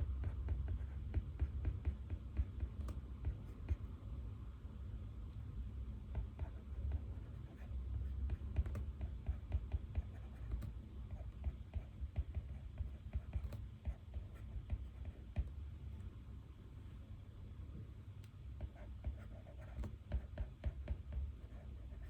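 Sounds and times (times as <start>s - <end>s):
pen scratching on paper: 0.2s - 3.8s, 6.1s - 15.5s, 18.6s - 22.0s.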